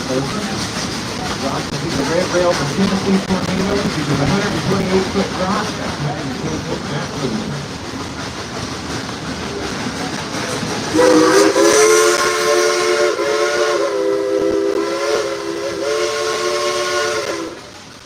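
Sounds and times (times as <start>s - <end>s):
train rumble and hiss: 0.0s - 18.0s
steam locomotive chime whistle: 10.9s - 17.6s.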